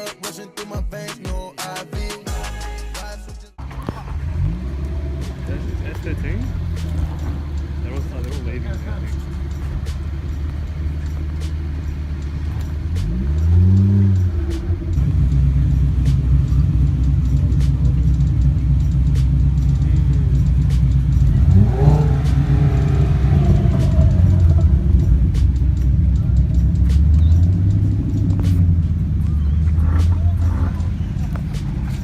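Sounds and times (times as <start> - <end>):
car engine revving: 3.6 - 32.0
car engines rumbling: 3.6 - 32.0.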